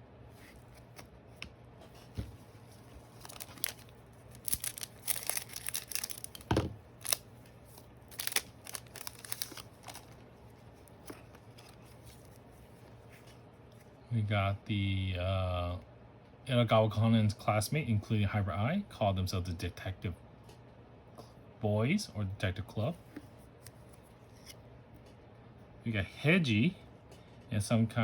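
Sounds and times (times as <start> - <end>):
cards rustling and crinkling: 0.3 - 13.9.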